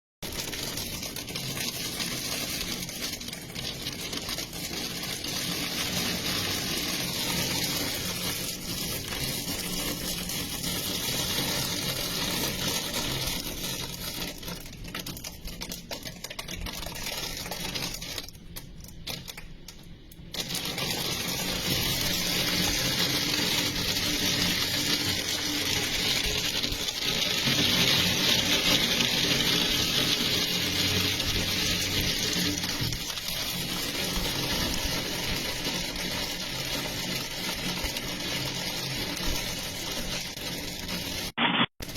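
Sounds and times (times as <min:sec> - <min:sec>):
heavy rain pouring: 0:20.4 - 0:41.3.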